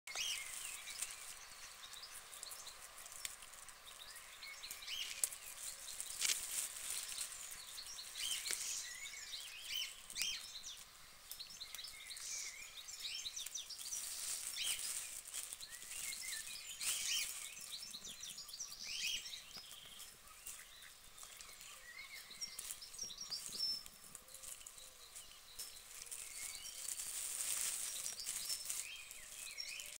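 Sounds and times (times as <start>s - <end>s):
small birds chirping: 0.1s - 30.0s.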